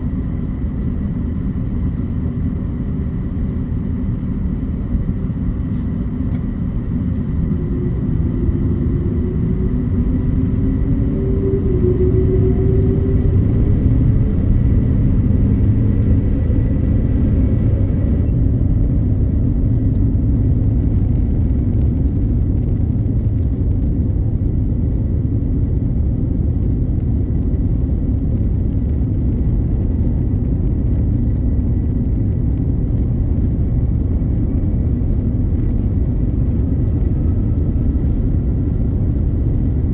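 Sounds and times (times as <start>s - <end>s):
jet engines at takeoff: 0.0s - 39.9s.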